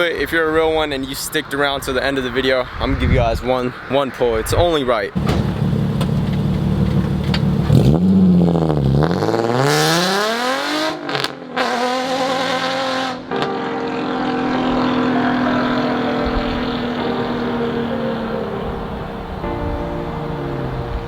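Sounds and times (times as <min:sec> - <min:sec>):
loud car engine revving: 0:05.2 - 0:19.4.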